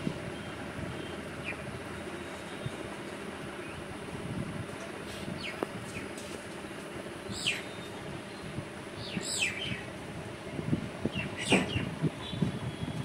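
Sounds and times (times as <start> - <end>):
steady background noise: 0.0 - 13.0
bird chirping falling calls: 7.3 - 9.9.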